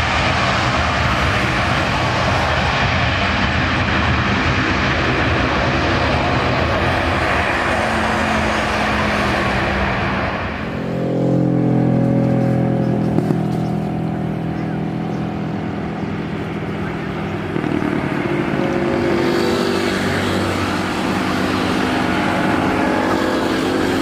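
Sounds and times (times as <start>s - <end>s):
jet engine roar passing: 0.0s - 24.0s
low engine hum with a tone: 0.0s - 24.0s.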